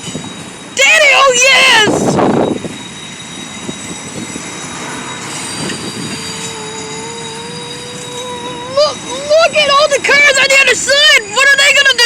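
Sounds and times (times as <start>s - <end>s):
high wheel squeal: 0.0s - 12.0s
train wheels rumbling on rail: 0.0s - 12.0s
steady pitched tone: 3.4s - 10.3s.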